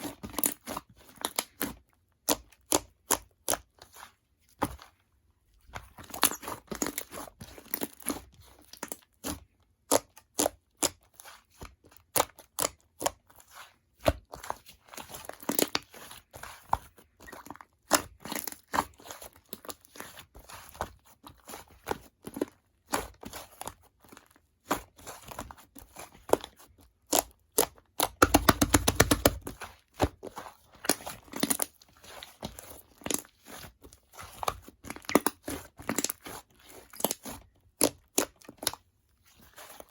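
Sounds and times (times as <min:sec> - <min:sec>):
slime crackling and popping: 0:28.0 - 0:29.6.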